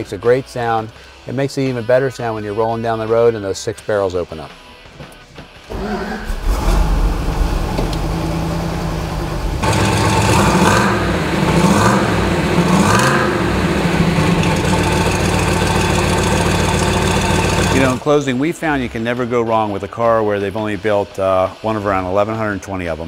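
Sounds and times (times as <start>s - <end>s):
car engine starting and idling: 5.7s - 18.0s
engine revving: 5.7s - 18.0s.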